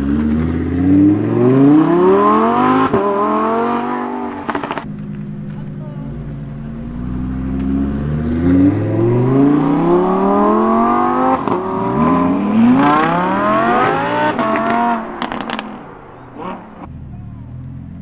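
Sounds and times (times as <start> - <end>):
car engine accelerating hard: 0.0 - 18.0
sharp exhaust pops: 14.3 - 16.9.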